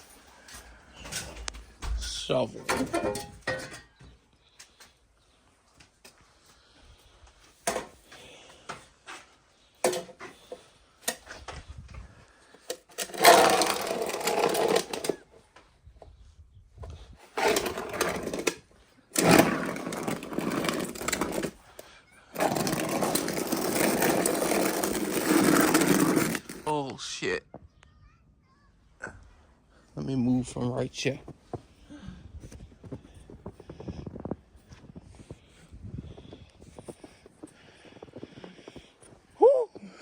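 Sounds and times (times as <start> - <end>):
knocks and clatter: 1.0 - 4.0
shovel scraping through snow: 22.4 - 26.6.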